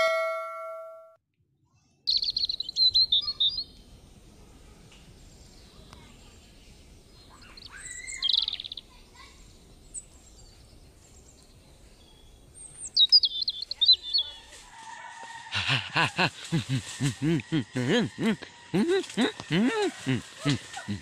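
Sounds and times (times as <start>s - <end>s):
wild birds calling: 15.2s - 21.0s.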